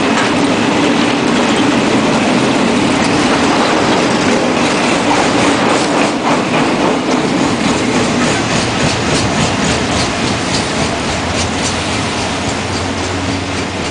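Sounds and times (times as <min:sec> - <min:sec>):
train rolling rumble: 0:00.0 - 0:13.9
wheels clickety-clack: 0:00.0 - 0:13.9.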